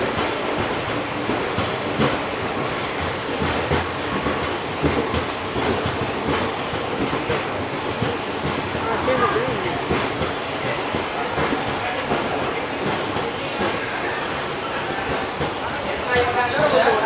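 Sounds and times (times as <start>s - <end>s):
clacks over rail joints: 0.1s - 17.0s.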